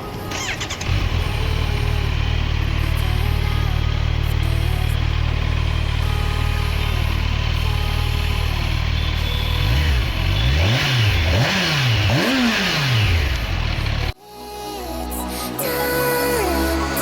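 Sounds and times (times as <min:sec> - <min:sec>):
motorcycle engine revving: 0:00.3 - 0:14.2
electronic music: 0:14.2 - 0:17.0.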